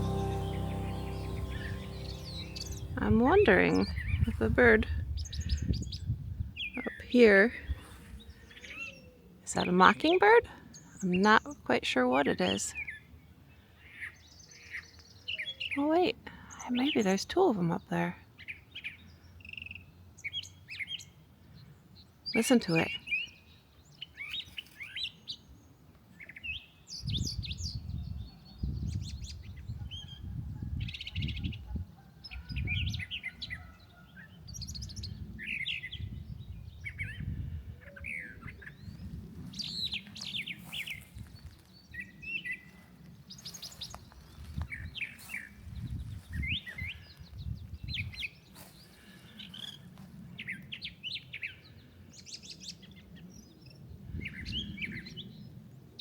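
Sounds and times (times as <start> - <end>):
bird singing varied phrases: 0.0 - 7.4.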